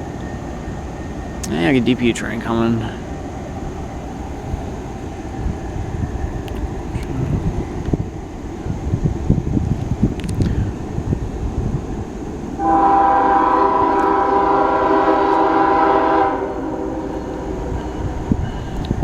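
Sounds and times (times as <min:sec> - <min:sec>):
train rumbling: 0:00.0 - 0:19.0
locomotive air horn chord: 0:12.6 - 0:17.7.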